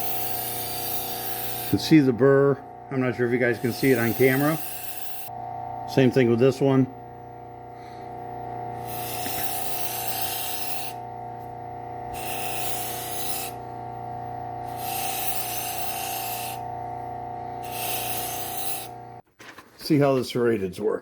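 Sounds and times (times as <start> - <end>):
knife grinding on belt: 0.0 - 1.8, 3.6 - 5.3, 8.8 - 11.0, 12.1 - 13.6, 14.6 - 16.6, 17.6 - 18.9
belt sander whining: 0.0 - 19.2.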